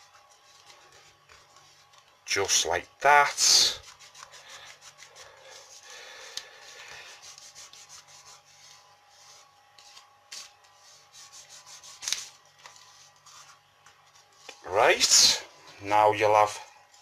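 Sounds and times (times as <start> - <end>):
paper rubbing and crinkling: 0.0 - 15.4
paper crackles: 6.6 - 14.8.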